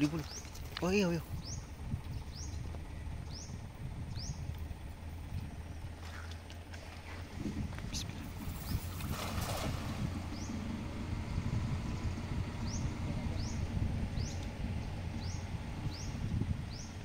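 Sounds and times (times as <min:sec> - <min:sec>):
bird chirping: 0:00.0 - 0:04.5, 0:10.3 - 0:17.0
river water rumbling: 0:00.0 - 0:17.0
wading in water: 0:05.9 - 0:10.6.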